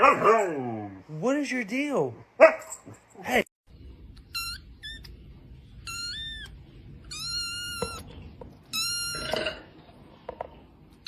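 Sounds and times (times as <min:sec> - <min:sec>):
cat meowing: 0:05.8 - 0:09.6.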